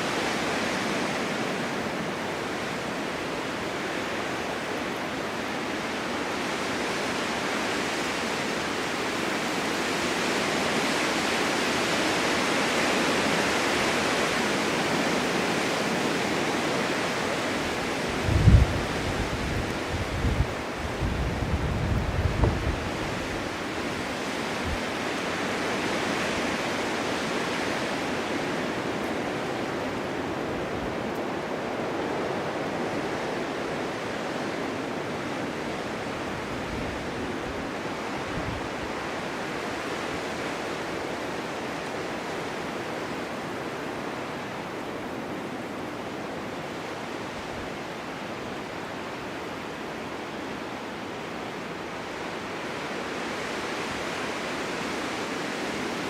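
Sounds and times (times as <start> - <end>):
snowstorm wind blowing: 0.0 - 56.0.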